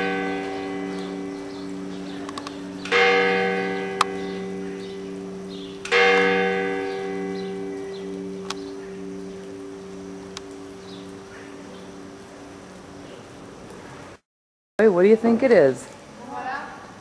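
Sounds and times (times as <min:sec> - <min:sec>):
large church bell tolling: 0:00.0 - 0:12.6.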